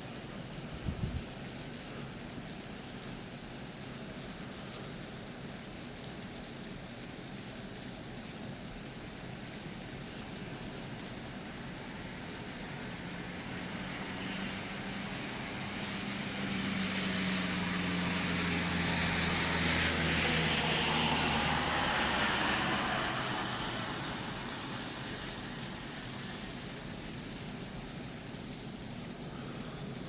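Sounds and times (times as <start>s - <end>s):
vehicle passing by: 12.0s - 27.2s.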